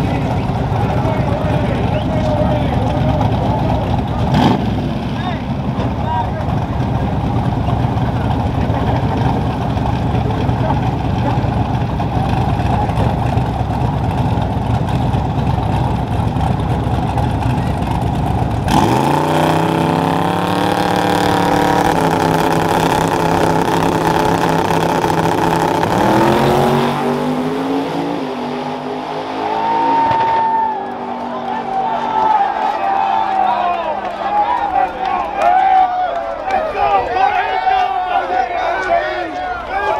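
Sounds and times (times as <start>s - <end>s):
vehicle engine rumbling: 0.0s - 39.9s
engine revving and accelerating: 2.8s - 5.3s, 18.6s - 30.4s.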